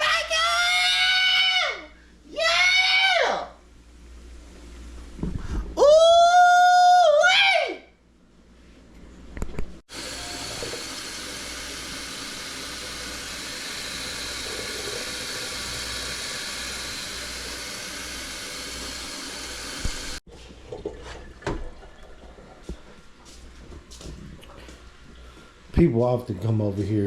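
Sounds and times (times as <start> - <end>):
water running from a tap: 9.9 - 20.2.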